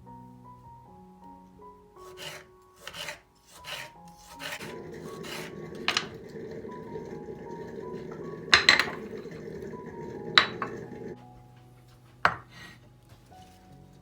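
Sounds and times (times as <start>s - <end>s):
soft background music: 0.0s - 14.0s
rasping scraping strokes: 2.0s - 11.2s.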